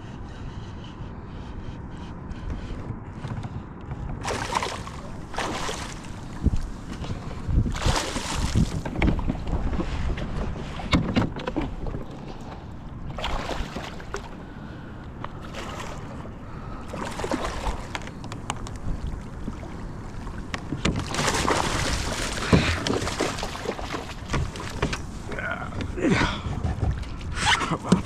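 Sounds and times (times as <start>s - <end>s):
wind on microphone: 1.6s - 14.4s
water splashing around kayak: 4.2s - 28.0s.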